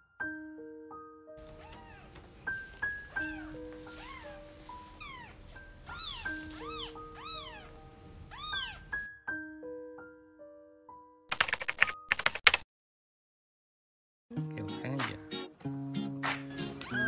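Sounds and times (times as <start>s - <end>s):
music of held notes: 1.4s - 8.9s, 14.3s - 17.0s
kitten mewing: 1.5s - 2.2s, 3.1s - 9.0s, 16.8s - 17.0s.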